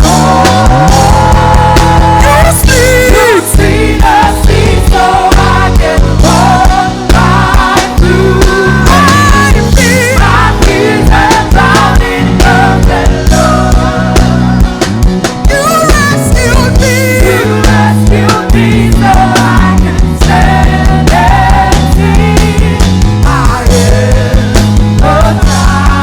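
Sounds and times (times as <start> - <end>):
gospel band with singers: 0.0 - 26.0.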